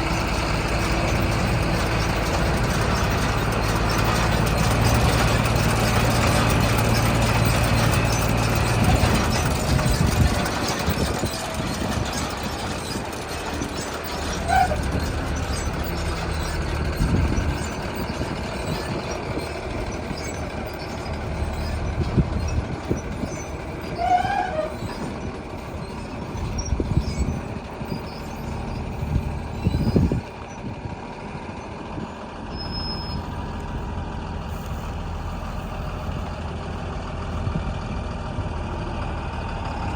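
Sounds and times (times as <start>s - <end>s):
tractor engine drone: 0.0s - 39.9s
heavy thumps of baler: 0.1s - 23.9s
brief squeal: 0.8s - 30.7s, 32.0s - 33.6s.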